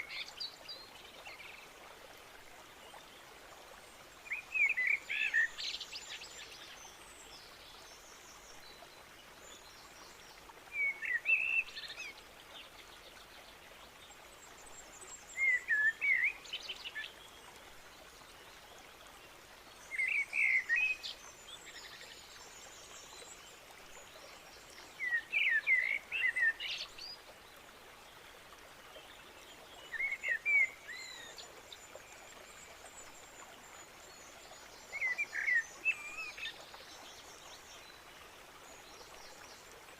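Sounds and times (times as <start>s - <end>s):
songbird chirping: 19.8s - 27.4s, 28.9s - 39.8s.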